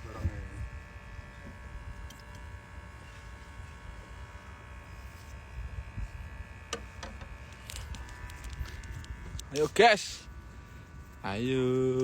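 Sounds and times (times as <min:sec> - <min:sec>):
buzzing hum over low rumble: 0:00.0 - 0:12.0.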